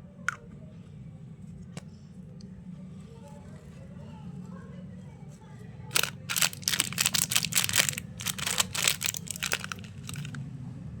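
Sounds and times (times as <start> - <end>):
candy wrapper crinkling: 5.9 - 10.4.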